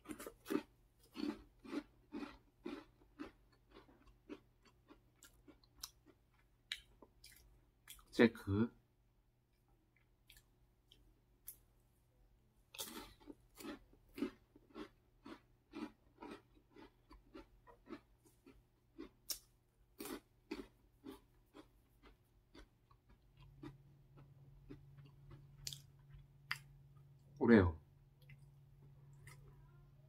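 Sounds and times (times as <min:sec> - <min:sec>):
crunchy snack chewing: 0:00.0 - 0:08.1, 0:12.7 - 0:26.8.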